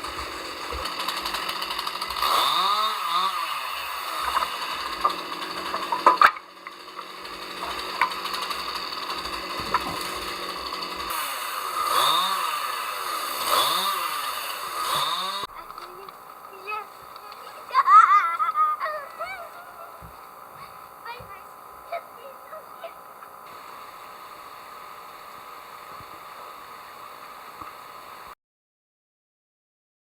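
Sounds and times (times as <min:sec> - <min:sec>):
chainsaw engine running: 0:00.0 - 0:28.4
sharp knocks: 0:09.1 - 0:10.4.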